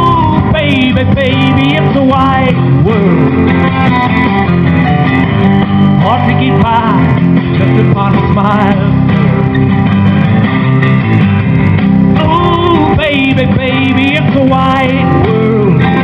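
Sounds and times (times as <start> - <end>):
person singing: 0.0 - 4.0, 5.9 - 9.1, 12.1 - 16.0
guitar-led backing music: 0.0 - 16.0.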